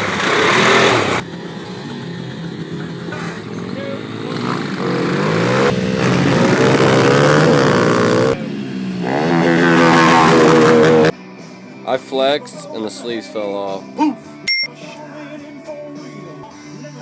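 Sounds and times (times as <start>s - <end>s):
small engine revving: 0.0s - 11.1s.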